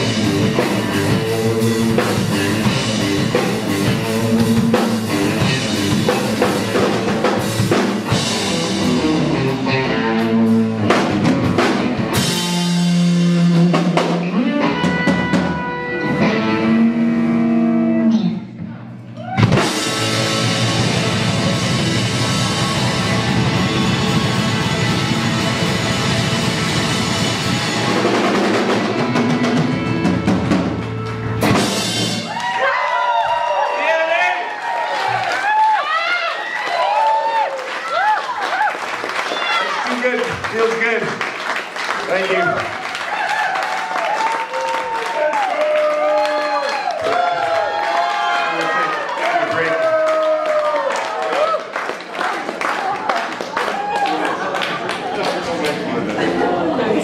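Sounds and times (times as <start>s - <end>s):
live rock band playing: 0.0s - 32.9s.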